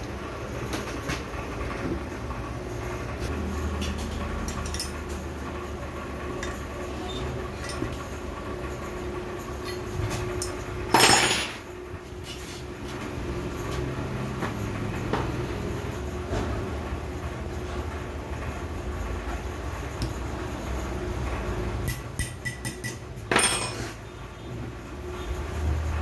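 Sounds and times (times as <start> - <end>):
steady background hum: 0.0 - 26.0
metal tools clicking and tapping: 3.8 - 5.2, 7.6 - 8.0, 9.6 - 11.6, 21.8 - 23.9.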